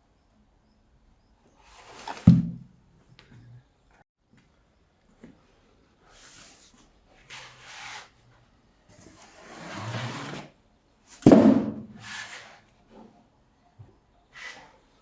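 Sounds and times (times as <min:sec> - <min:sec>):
rubbing and scraping: 0:09.0 - 0:10.6, 0:11.2 - 0:13.1
sharp loud knock: 0:11.3 - 0:12.0.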